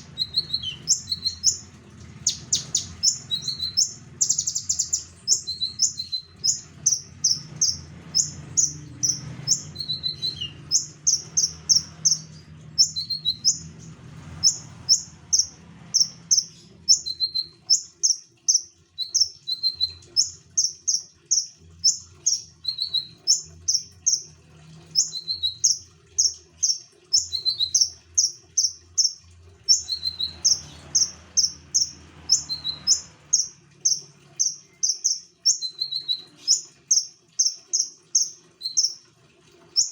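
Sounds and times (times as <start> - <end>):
songbird singing high sharp notes: 0.0 - 1.6, 2.2 - 13.7.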